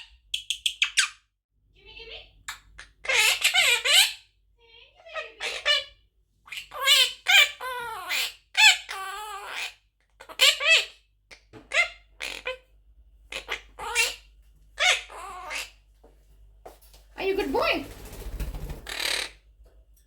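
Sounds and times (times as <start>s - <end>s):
parakeet squawking calls: 2.5s - 4.3s, 5.1s - 12.6s, 13.3s - 15.8s, 18.7s - 19.4s.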